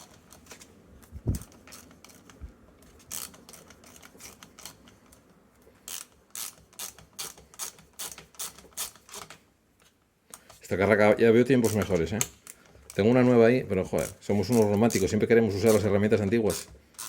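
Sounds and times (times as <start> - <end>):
socket ratchet clicking: 5.9 - 9.3, 16.5 - 17.0.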